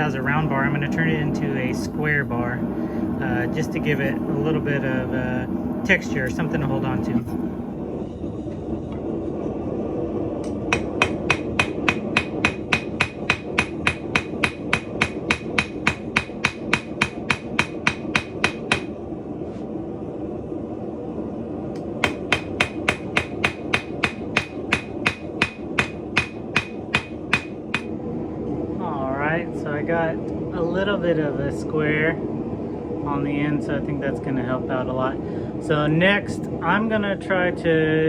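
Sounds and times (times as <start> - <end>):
steady rushing noise: 0.0 - 38.0
hammer striking metal on anvil: 10.4 - 18.9, 22.0 - 27.9.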